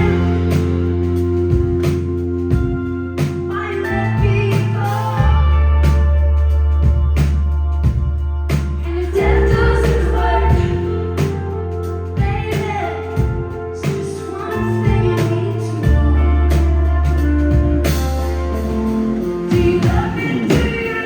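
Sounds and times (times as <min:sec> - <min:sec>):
woman singing: 0:00.0 - 0:00.8, 0:03.5 - 0:06.1, 0:08.8 - 0:11.6, 0:12.2 - 0:17.6, 0:19.5 - 0:21.0
held bass notes: 0:00.0 - 0:21.0
live rock band playing: 0:00.0 - 0:21.0.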